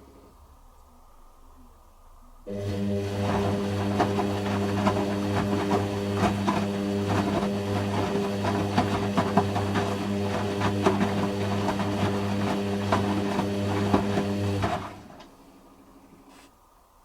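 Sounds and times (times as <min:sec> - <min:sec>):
drain pump humming: 0:02.5 - 0:16.0.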